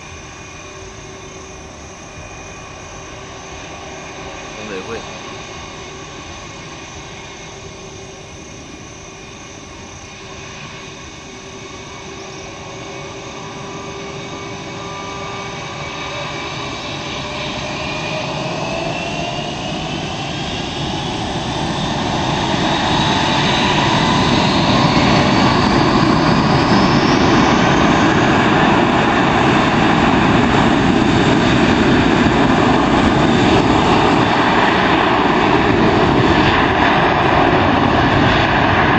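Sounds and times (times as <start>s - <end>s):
jet engines spooling up: 0.0s - 38.9s.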